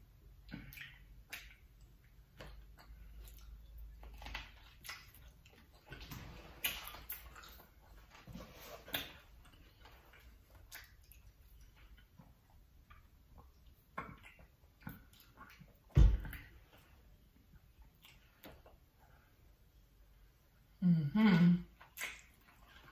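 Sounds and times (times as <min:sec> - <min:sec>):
person chewing food: 0:00.1 - 0:19.7, 0:21.7 - 0:22.9
lip smacks: 0:00.5 - 0:08.1, 0:21.8 - 0:22.9.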